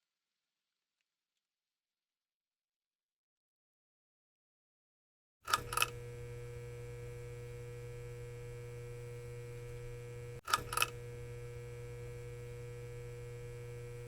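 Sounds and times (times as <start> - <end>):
electrical hum: 5.5 - 14.0.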